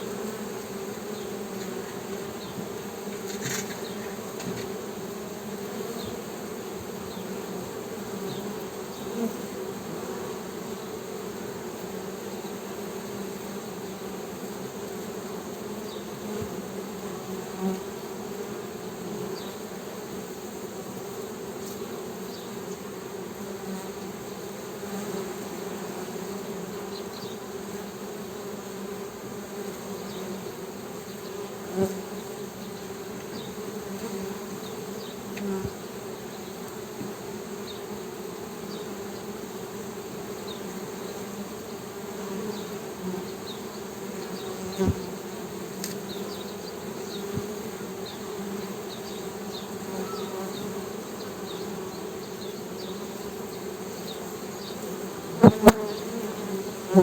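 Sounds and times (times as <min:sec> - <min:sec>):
honey bees humming: 0:00.0 - 0:57.0
single bee buzzing close: 0:00.0 - 0:57.0.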